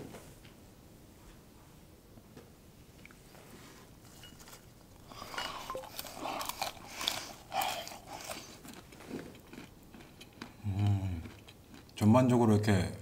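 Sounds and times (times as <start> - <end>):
crunching walnuts: 5.0 - 12.1.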